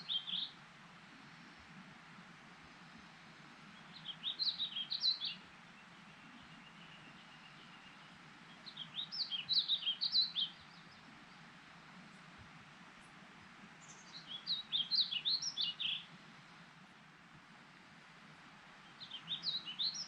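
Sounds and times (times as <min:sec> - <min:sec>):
faint background hiss: 0:00.0 - 0:20.0
songbird warbling: 0:13.8 - 0:16.1.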